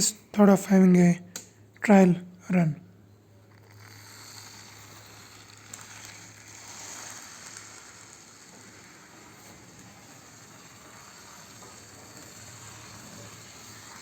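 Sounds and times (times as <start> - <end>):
model train motor whirring: 3.4 - 14.0.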